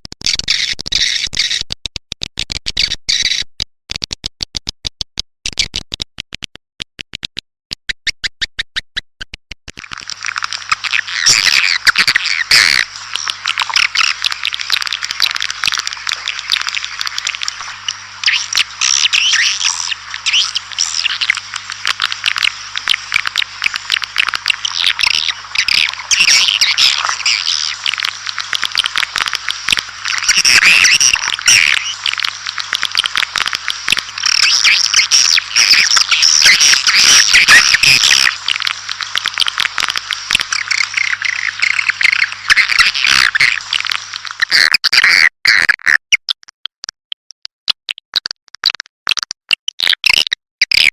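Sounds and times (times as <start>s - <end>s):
rapid clicks: 9.7s - 42.8s.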